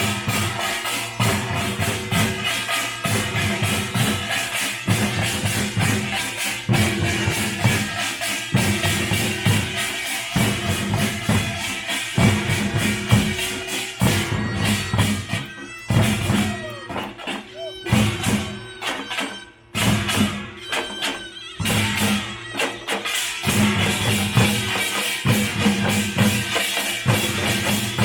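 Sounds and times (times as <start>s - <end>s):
percussion band drums and gongs: 0.0s - 28.0s.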